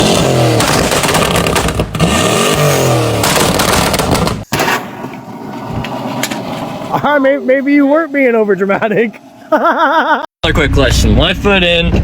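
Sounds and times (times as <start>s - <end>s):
car engine revving: 0.0s - 4.4s.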